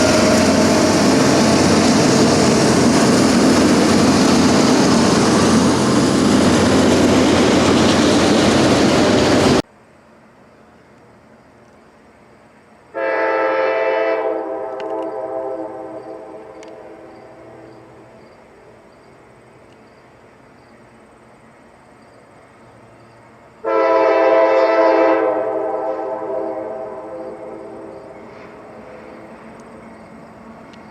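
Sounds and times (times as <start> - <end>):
locomotive air horn blasts: 0.0 - 1.3, 12.9 - 17.6, 23.6 - 27.4.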